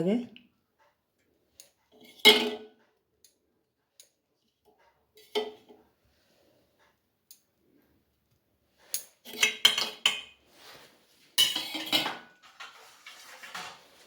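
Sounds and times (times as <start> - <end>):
utensils and dishes clattering: 1.6 - 3.4, 5.1 - 5.8, 8.8 - 10.6, 11.3 - 14.0.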